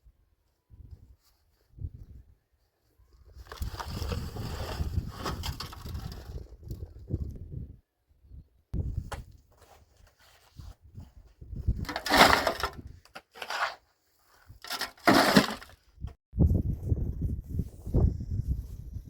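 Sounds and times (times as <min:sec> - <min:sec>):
rough crunching crashes: 0:11.8 - 0:13.8, 0:14.5 - 0:15.8.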